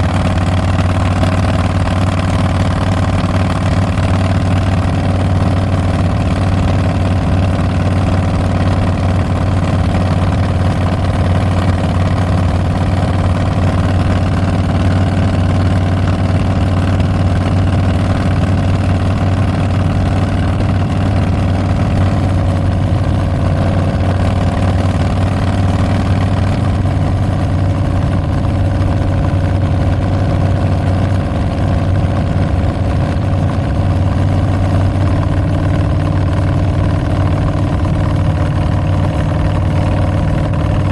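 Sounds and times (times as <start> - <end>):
motorcycle exhaust running steadily: 0.0 - 40.9.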